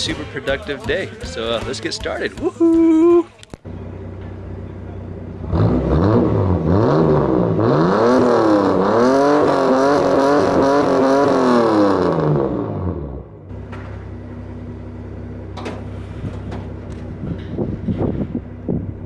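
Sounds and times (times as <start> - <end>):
car engine revving: 3.6 - 18.4.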